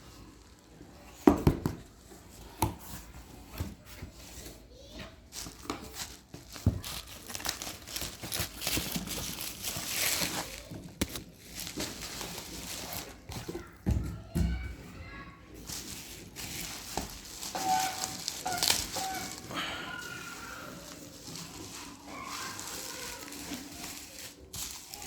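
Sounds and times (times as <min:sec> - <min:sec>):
packaging crumpled and torn: 0:05.4 - 0:13.6, 0:15.7 - 0:25.0.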